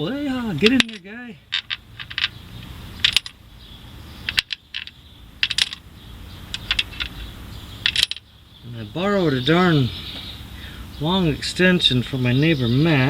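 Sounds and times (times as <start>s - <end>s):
metal bolts clinking: 0.0s - 3.4s, 4.2s - 5.9s, 6.5s - 8.3s.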